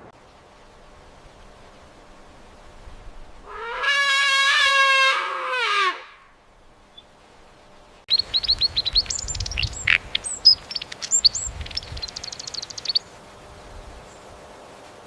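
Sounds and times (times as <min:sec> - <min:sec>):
steady background hiss: 0:00.0 - 0:15.0
songbird singing: 0:06.5 - 0:14.3.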